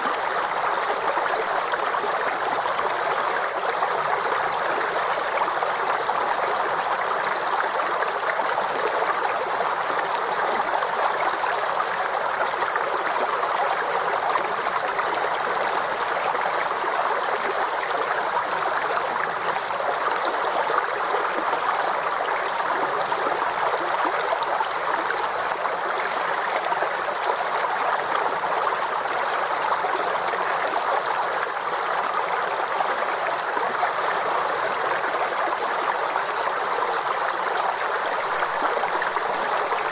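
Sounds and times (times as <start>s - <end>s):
babbling stream: 0.0s - 39.9s.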